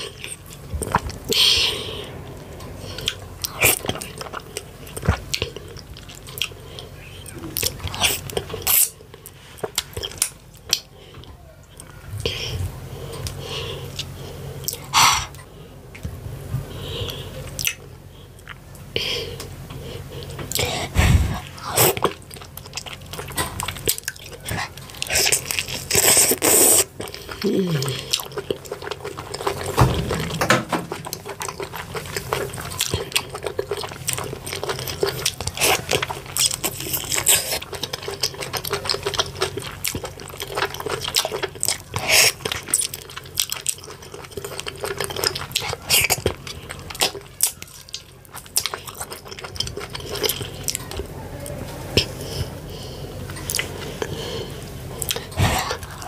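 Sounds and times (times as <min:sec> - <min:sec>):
wet chewing and smacking: 0:00.0 - 0:12.5, 0:17.0 - 0:52.6, 0:53.2 - 0:56.0.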